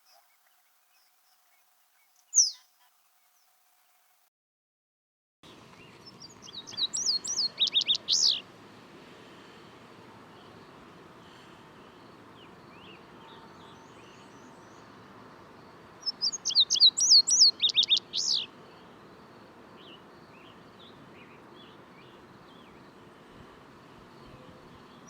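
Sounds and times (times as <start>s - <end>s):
faint distant bird calls: 0.0s - 4.2s, 5.5s - 25.0s
bird singing high notes: 2.3s - 2.7s.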